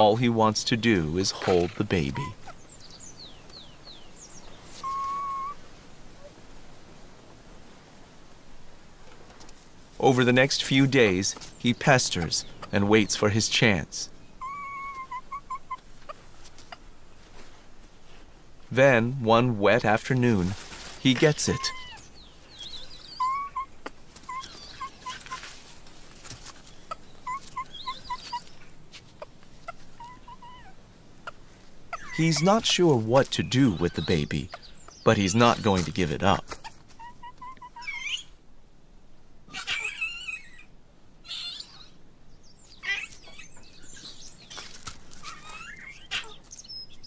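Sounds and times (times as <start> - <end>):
monkeys chirping calls: 0.9 - 5.6, 14.3 - 16.9, 21.2 - 25.5, 26.8 - 38.4, 39.5 - 42.0, 42.6 - 44.6, 45.2 - 47.0.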